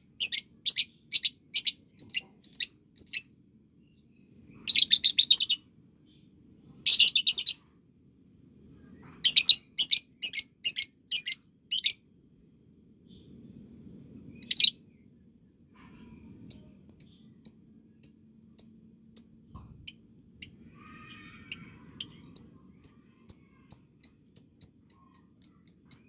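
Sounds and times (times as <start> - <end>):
bird high chirps: 0.1 - 6.2, 6.9 - 7.6, 8.8 - 12.0, 14.3 - 14.8, 20.4 - 26.0.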